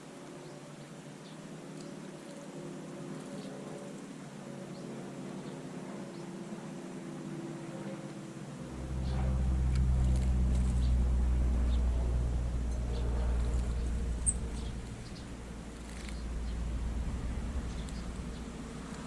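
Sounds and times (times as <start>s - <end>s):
motor vehicle engine drone: 8.4s - 19.0s
small birds chirping: 8.9s - 19.0s.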